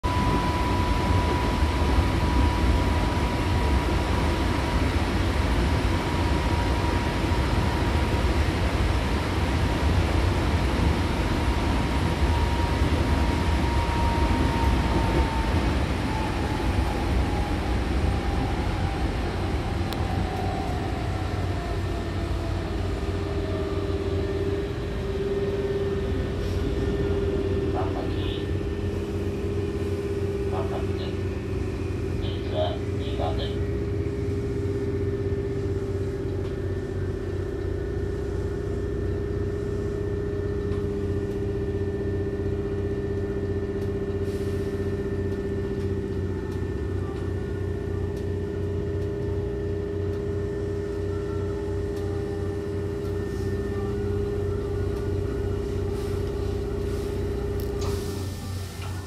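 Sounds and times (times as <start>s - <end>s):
train wheels rumbling on rails: 0.0s - 59.0s
train motor whine: 12.0s - 59.0s.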